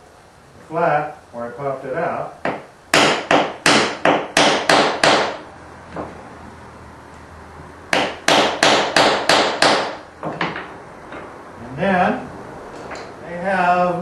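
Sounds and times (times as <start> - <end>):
hammer striking metal: 7.9 - 10.7.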